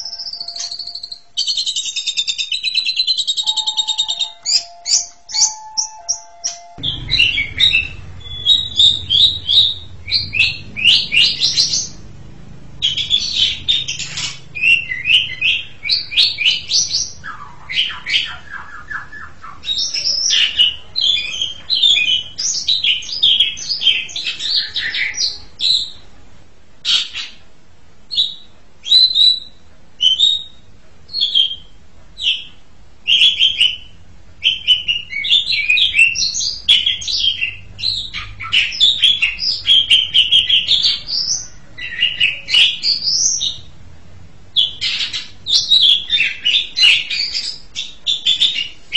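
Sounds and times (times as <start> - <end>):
starling singing: 0.0 - 26.1, 28.1 - 43.8, 44.5 - 48.9.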